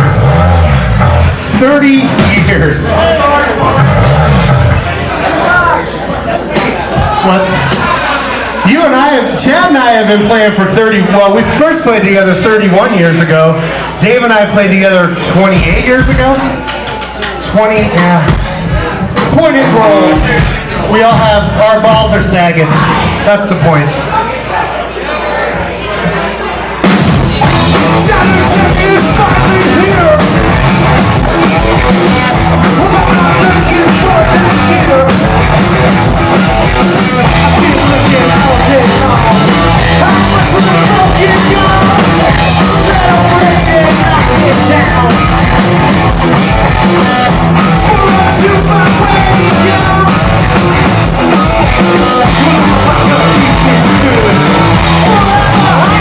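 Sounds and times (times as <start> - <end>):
punk rock band playing live: 0.0 - 5.4, 6.3 - 23.8, 26.8 - 56.0
person singing: 27.4 - 56.0.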